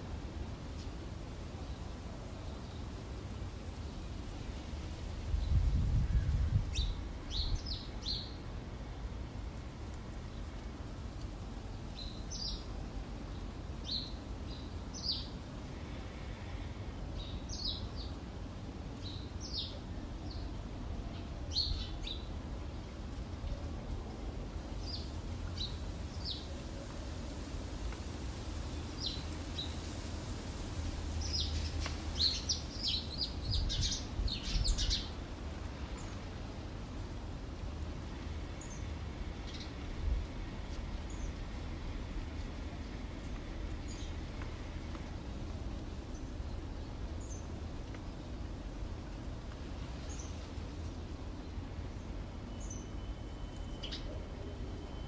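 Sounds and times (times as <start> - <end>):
small birds chirping: 11.7 - 16.6, 28.7 - 29.9, 31.1 - 36.4, 50.0 - 54.2.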